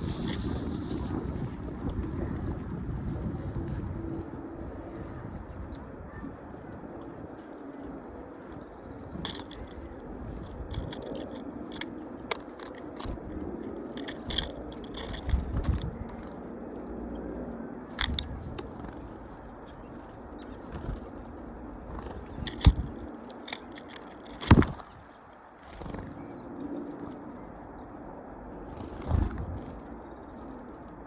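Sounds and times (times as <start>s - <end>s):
wings fluttering: 0.0s - 27.4s, 28.5s - 31.0s
birds pecking at food: 4.8s - 27.4s.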